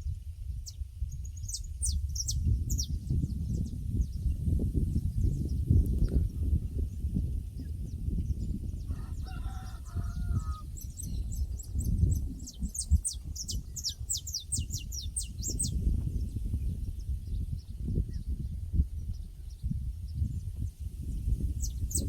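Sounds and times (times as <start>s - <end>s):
small bird singing: 0.6s - 22.0s
rooster crowing faintly: 8.9s - 10.7s.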